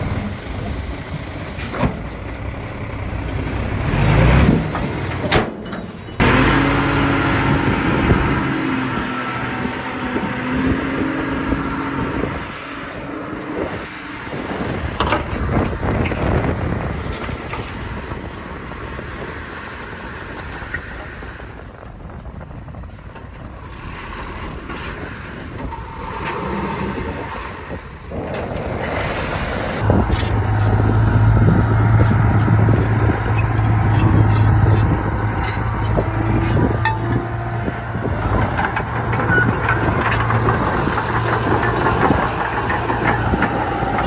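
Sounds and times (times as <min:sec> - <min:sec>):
heavy diesel machinery running: 0:00.0 - 0:44.0
sharp clicks and clanks: 0:29.8 - 0:44.0.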